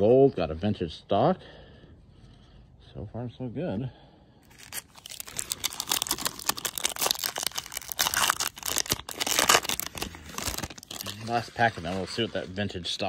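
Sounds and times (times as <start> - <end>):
foil wrapper crinkling and tearing: 4.4 - 12.6.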